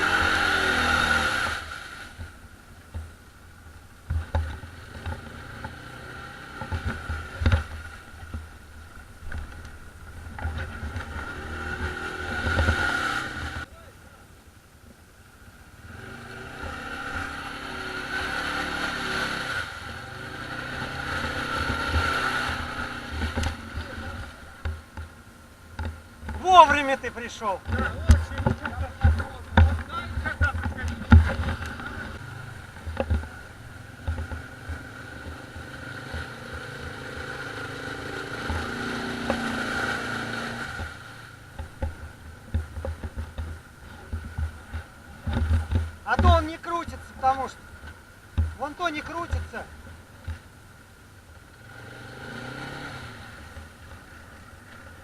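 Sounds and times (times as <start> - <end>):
atv engine running: 0.0 - 13.7, 15.6 - 55.0
low thumps: 25.8 - 35.5.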